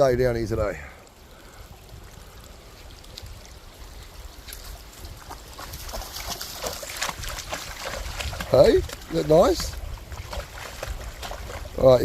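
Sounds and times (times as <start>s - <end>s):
dog swimming splashing water: 5.0s - 12.0s.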